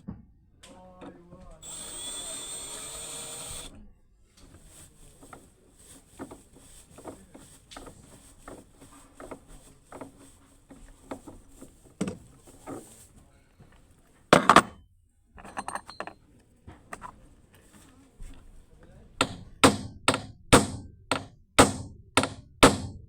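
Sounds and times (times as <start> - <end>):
metal tools clicking and clinking: 15.4 - 16.2.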